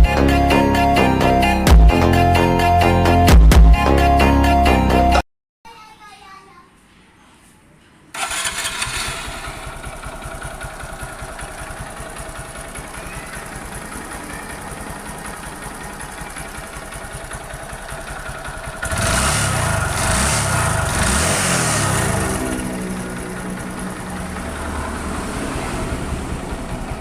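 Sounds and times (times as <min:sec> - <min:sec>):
motorcycle engine idling: 0:08.2 - 0:27.0.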